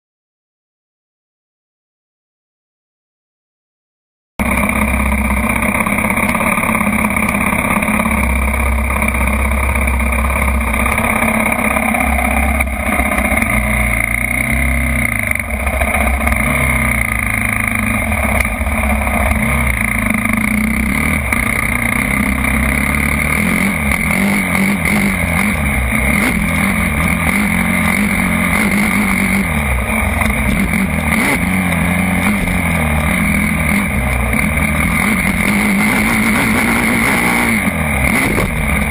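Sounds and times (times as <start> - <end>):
motorcycle engine revving: 4.4 - 38.9.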